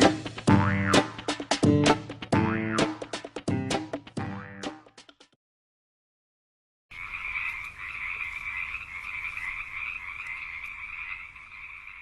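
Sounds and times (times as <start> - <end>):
frogs calling: 6.9 - 12.0.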